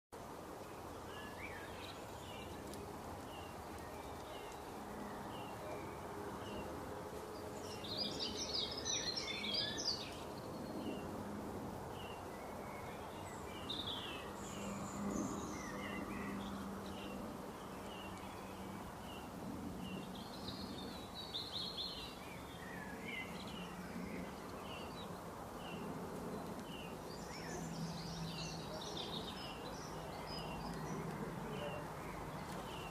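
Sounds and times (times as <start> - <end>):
bird warbling song: 7.4 - 11.1, 12.0 - 32.9.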